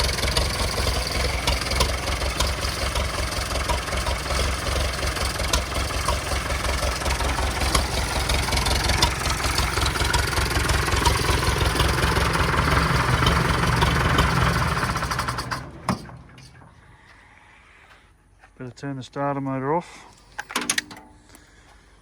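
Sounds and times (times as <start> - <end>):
tractor engine running: 0.0 - 17.1.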